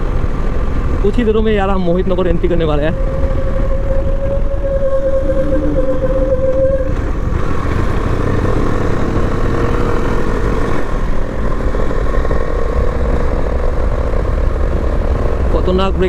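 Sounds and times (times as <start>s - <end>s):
wind and road noise: 0.0s - 16.0s
motorcycle engine running: 5.5s - 16.0s.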